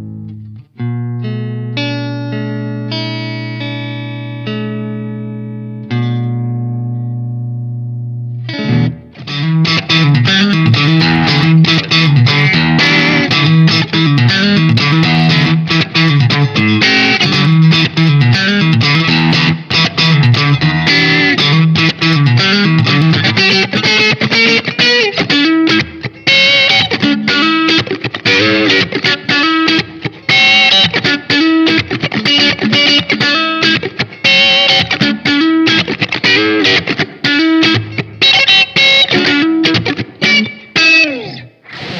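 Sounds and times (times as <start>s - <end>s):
distorted electric guitar riff: 0.0s - 41.9s.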